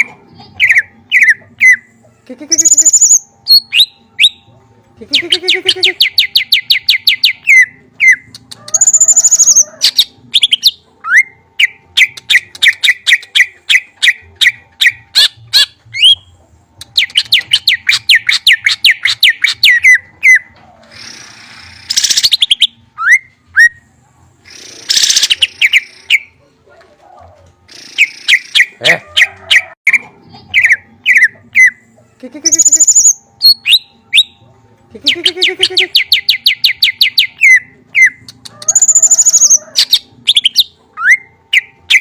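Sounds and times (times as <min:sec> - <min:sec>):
songbird trilling: 0:32.5 - 0:33.8.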